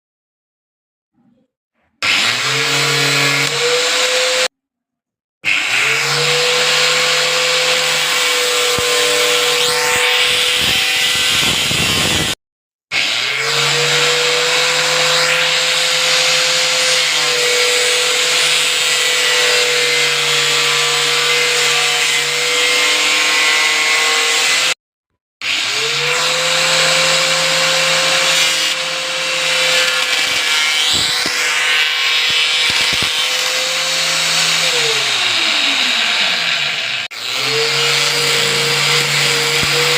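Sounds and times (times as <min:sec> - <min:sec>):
angle grinder whining: 0:02.0 - 0:04.5, 0:05.4 - 0:12.4, 0:13.0 - 0:24.8, 0:25.4 - 0:39.9.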